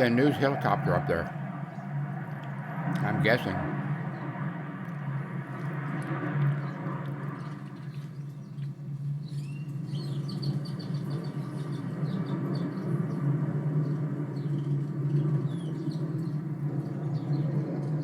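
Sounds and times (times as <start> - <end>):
steady low drone: 0.0 - 8.8
small birds chirping: 5.4 - 18.0.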